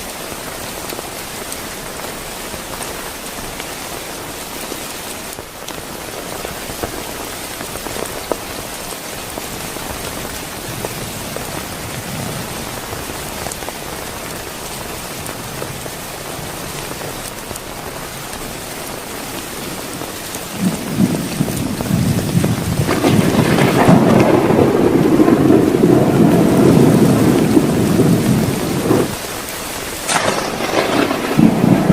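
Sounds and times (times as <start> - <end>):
heavy rain falling: 0.0 - 31.9
raindrops ticking: 5.3 - 31.9
thunder rumbling: 9.3 - 31.9.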